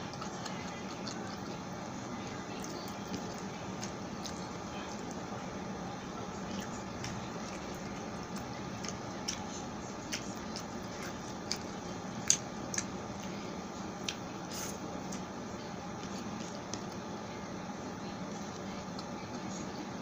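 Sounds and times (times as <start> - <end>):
wet chewing smacks: 0.0 - 5.3, 6.4 - 13.4.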